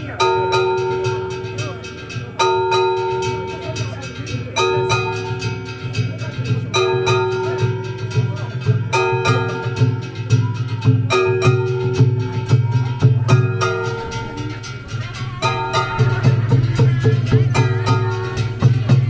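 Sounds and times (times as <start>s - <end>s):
rapid small percussion: 0.0s - 19.0s
steady drumming: 0.0s - 19.0s
metal gong ringing: 11.1s - 19.0s.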